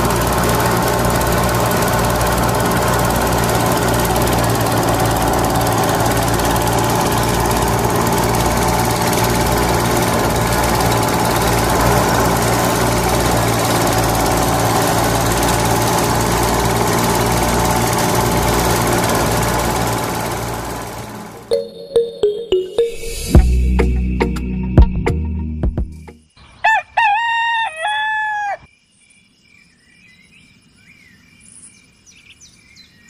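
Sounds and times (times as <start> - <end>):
small thresher motor running: 0.0 - 21.5.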